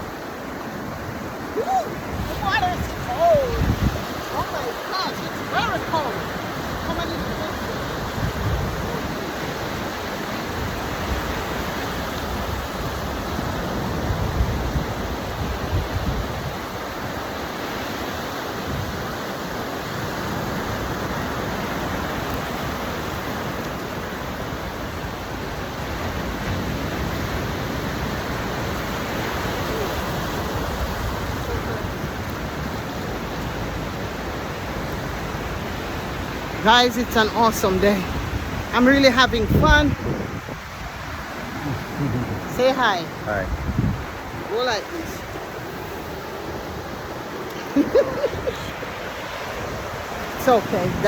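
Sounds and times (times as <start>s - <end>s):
ocean surf washing: 0.0s - 51.0s.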